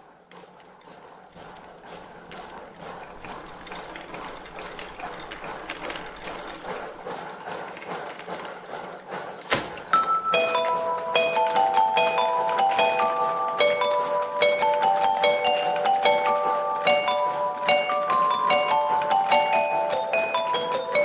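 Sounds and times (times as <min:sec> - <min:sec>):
chiming glockenspiel-like melody: 0:10.0 - 0:21.0.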